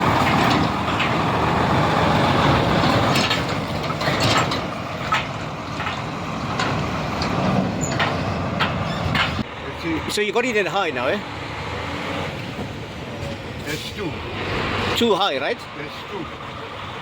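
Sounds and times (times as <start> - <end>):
diesel truck engine droning: 0.0 - 17.0
clicks and rattles: 0.1 - 1.3, 2.6 - 9.5.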